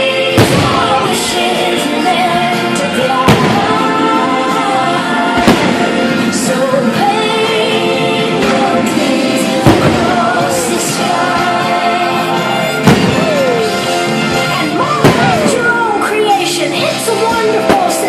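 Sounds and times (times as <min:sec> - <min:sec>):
music with singing over loudspeakers: 0:00.0 - 0:18.0
sharp firework bangs: 0:03.3 - 0:04.0, 0:05.4 - 0:06.3, 0:09.6 - 0:10.3, 0:12.8 - 0:13.6.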